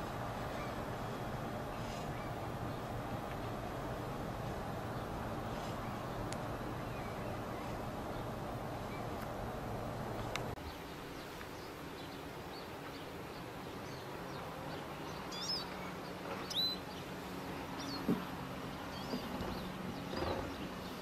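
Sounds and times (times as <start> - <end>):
low rumble: 0.0 - 10.6
faint low hum: 0.0 - 11.3
small birds chirping: 0.0 - 21.0.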